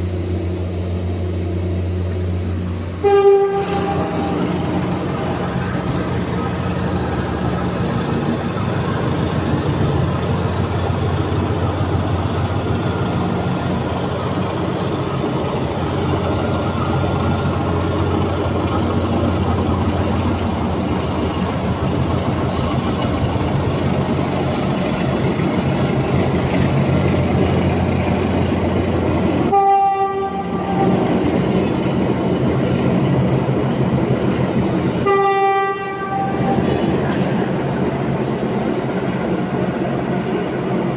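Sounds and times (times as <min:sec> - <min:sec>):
train rumbling: 0:00.0 - 0:40.9
train horn blasts: 0:03.0 - 0:04.6, 0:29.5 - 0:31.2, 0:35.0 - 0:36.9.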